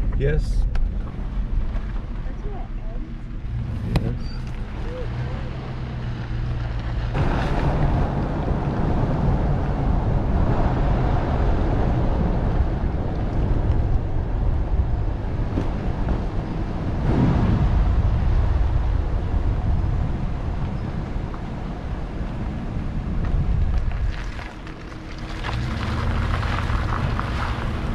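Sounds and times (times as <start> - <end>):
truck engine and tyres rumbling: 0.0 - 27.9
wind noise on microphone: 7.0 - 27.9.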